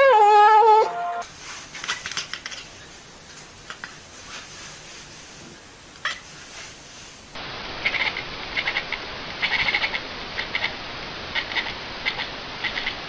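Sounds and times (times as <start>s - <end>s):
steady background hiss: 0.9s - 13.0s
small animal squeaking: 7.8s - 10.7s.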